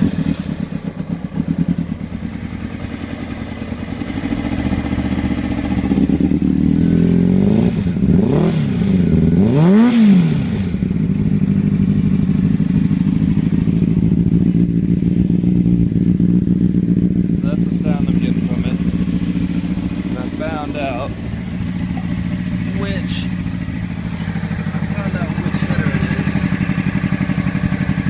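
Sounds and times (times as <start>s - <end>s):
motorcycle engine idling with misfire: 0.0s - 28.0s.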